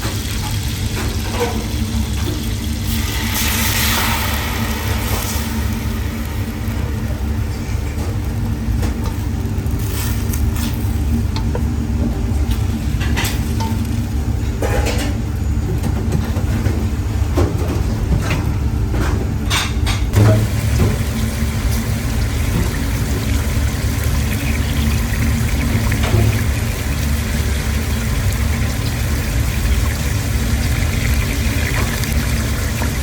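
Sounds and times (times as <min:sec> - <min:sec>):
chicken frying in a pan: 0:00.0 - 0:14.4, 0:20.1 - 0:33.0
low rumble: 0:01.9 - 0:13.0.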